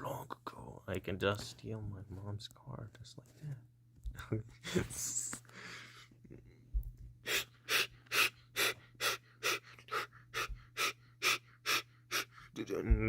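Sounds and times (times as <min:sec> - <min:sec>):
person breathing hard and fast: 0:04.6 - 0:12.6.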